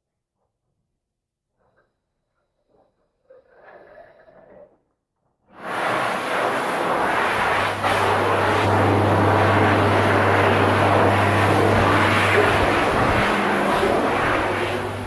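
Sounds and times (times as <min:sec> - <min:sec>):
loud steady rushing noise: 0:05.6 - 0:15.0.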